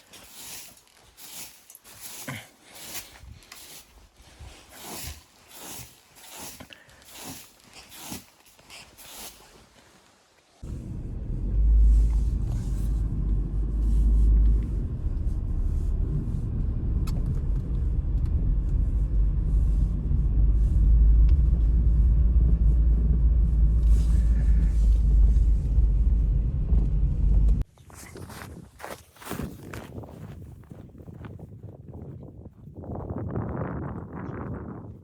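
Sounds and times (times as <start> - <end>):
strong wind buffeting microphone: 29.4 - 35.0.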